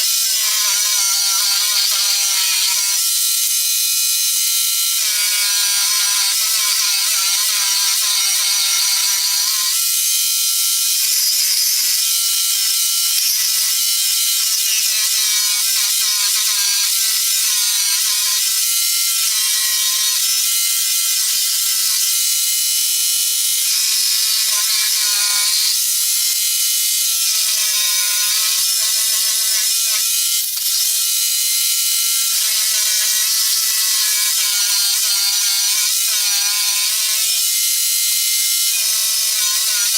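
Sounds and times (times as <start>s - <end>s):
electric jigsaw cutting: 0.0s - 39.9s.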